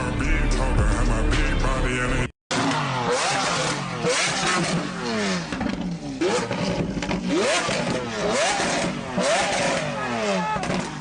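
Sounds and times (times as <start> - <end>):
car engine revving: 0.6 - 11.0.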